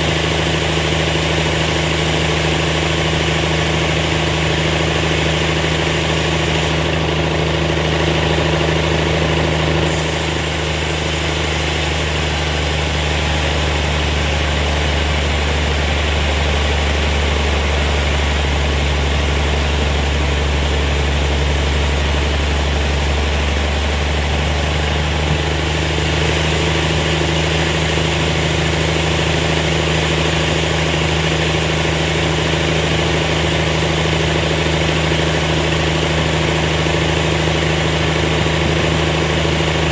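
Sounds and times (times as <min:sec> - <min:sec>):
sawmill machinery running: 0:00.0 - 0:39.9
high hiss: 0:09.9 - 0:25.1.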